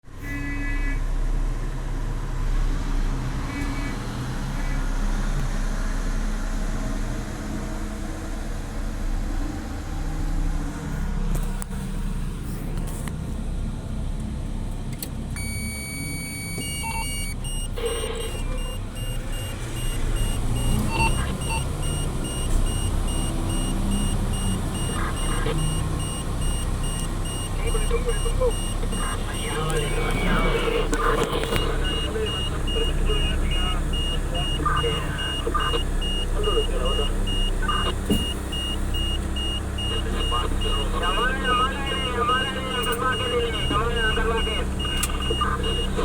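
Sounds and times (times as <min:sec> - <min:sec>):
diesel engine rumbling: 0:00.0 - 0:46.0
electronic beep alarm: 0:15.4 - 0:46.0.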